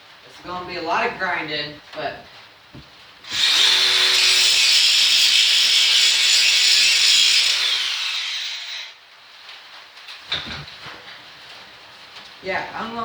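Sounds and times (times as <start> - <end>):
angle grinder grinding metal: 3.2 - 8.9.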